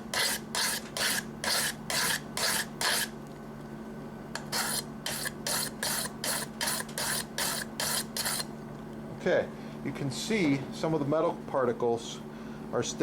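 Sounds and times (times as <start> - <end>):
knife rasping on sharpening stone: 0.1 - 3.1, 4.4 - 8.5.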